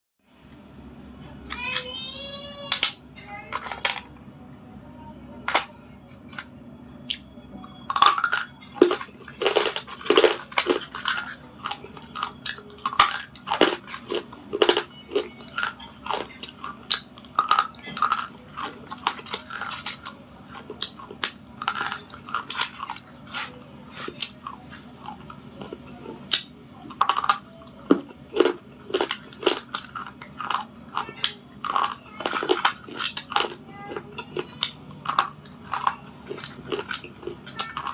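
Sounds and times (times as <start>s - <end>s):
crunchy biting and chewing: 7.9s - 37.9s.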